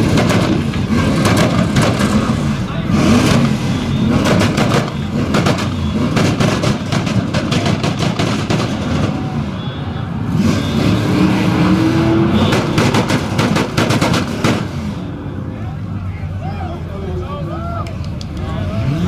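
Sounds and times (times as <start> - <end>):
exhaust pops and crackles: 0.0 - 9.4, 12.4 - 14.8
car engine revving: 0.0 - 9.5, 10.2 - 15.7.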